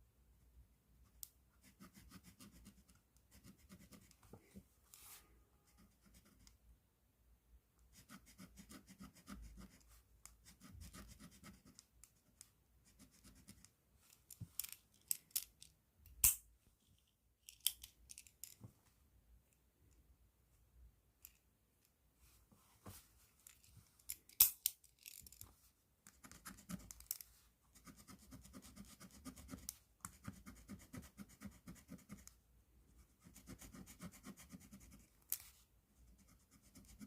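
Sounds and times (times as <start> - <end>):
pen scratching on paper: 1.6 - 4.1, 7.9 - 9.8, 10.4 - 11.8, 26.2 - 26.9, 27.7 - 32.2, 33.0 - 35.1, 36.1 - 37.0.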